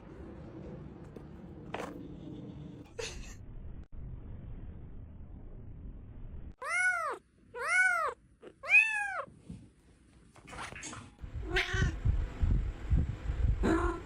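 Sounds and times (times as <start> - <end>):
cat meowing: 6.6 - 9.3, 11.4 - 12.0.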